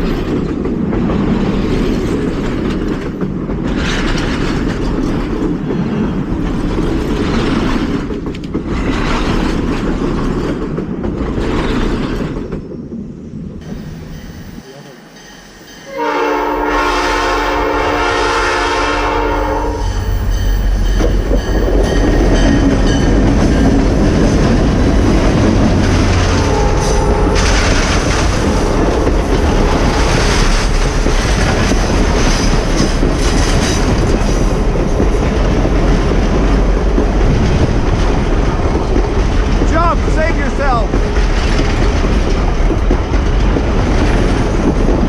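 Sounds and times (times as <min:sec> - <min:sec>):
train wheels rumbling on rails: 0:00.0 - 0:45.0
train horn chord: 0:15.9 - 0:20.1, 0:26.4 - 0:27.4.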